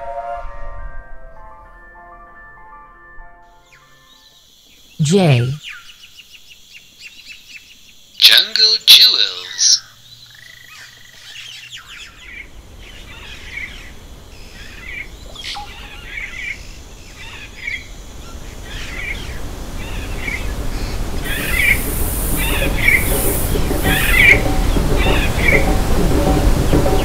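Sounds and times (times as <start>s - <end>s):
steady rushing noise: 18.1s - 27.0s.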